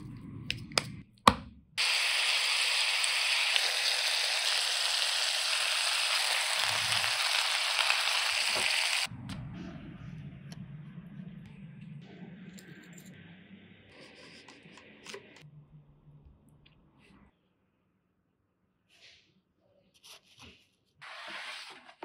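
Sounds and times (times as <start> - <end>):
burger patties sizzling in a pan: 1.8 - 9.1.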